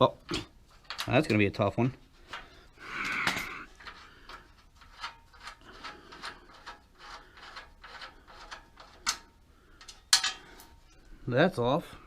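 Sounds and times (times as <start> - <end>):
rasping metal strokes: 2.9 - 11.0.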